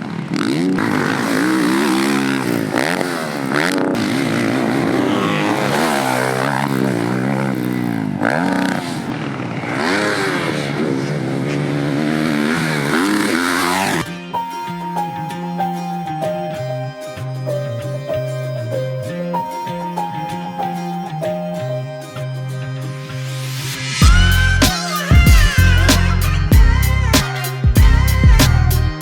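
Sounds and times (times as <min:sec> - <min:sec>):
dirt bike engine revving: 0:00.0 - 0:14.3
music: 0:13.6 - 0:29.0.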